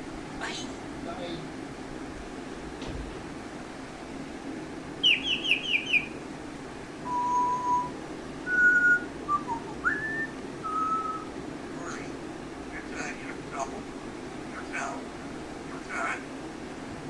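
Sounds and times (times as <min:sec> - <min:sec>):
parrot whistling notes: 0:05.0 - 0:06.1, 0:07.1 - 0:11.3
parrot chirping: 0:05.0 - 0:06.2, 0:08.5 - 0:11.3.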